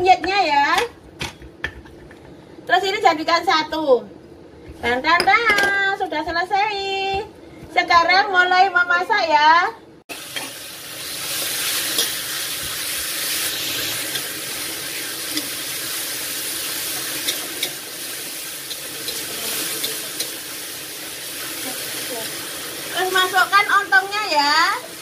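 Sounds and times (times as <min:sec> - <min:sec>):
spice paste sizzling in oil: 0:10.1 - 0:25.0.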